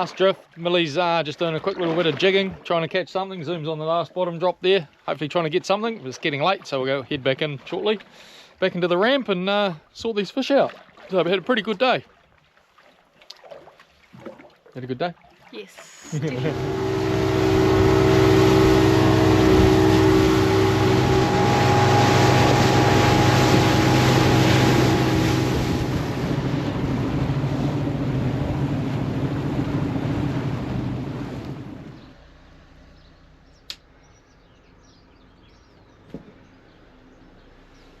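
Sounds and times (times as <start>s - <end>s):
boat engine running: 15.9s - 32.5s
rushing noise: 16.3s - 28.4s.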